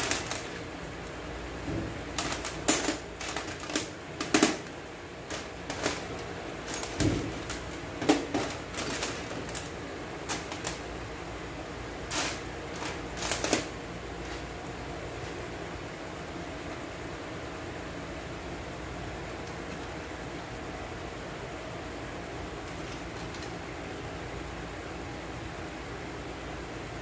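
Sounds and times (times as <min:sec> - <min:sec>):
metal parts and tools clacking: 0:05.3 - 0:09.7.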